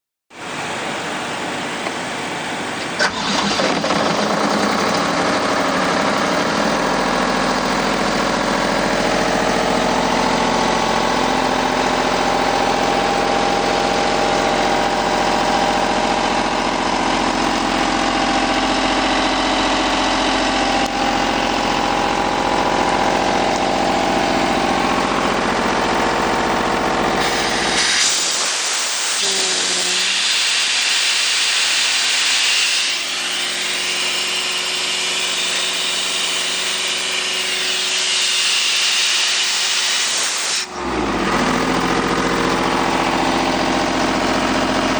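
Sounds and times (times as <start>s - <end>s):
diesel engine running: 0.4s - 44.9s
hiss: 27.2s - 34.3s, 35.2s - 40.7s.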